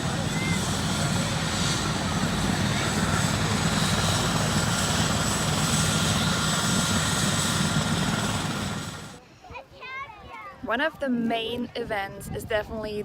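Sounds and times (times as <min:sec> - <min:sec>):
helicopter rotor and turbine: 0:00.0 - 0:09.2.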